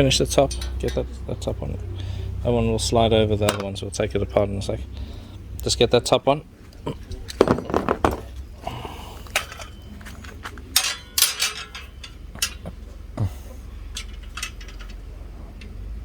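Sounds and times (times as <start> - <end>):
bird feeder parts clinking: 0.0 - 1.3, 3.4 - 3.8, 9.3 - 12.9, 13.8 - 15.8.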